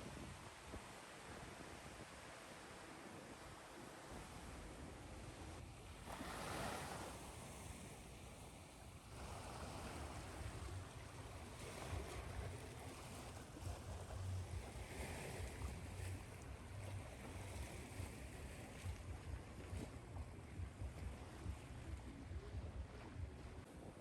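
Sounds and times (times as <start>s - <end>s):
ocean surf washing: 5.9s - 23.4s
breaking waves rumbling: 6.0s - 8.4s, 9.0s - 23.6s.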